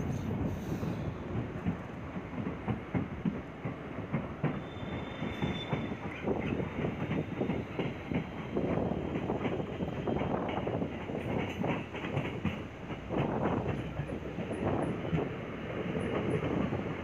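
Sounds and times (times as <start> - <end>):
train rumble: 0.0 - 17.0
train wheels clattering: 0.0 - 17.0
high wheel squeal: 4.6 - 6.0.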